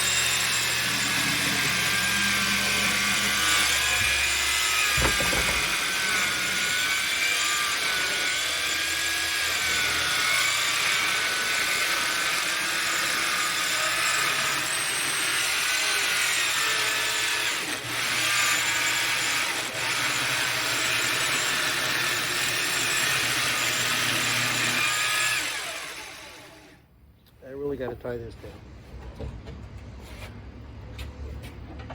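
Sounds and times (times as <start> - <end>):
circular saw ripping wood: 0.0 - 26.8.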